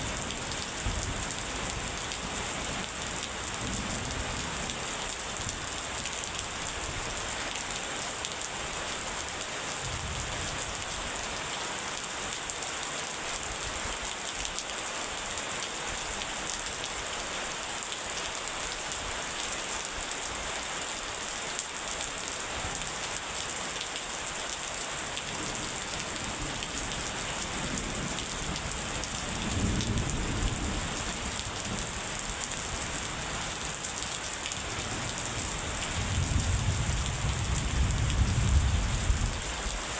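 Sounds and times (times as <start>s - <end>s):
thunder rumbling: 36.0s - 39.4s.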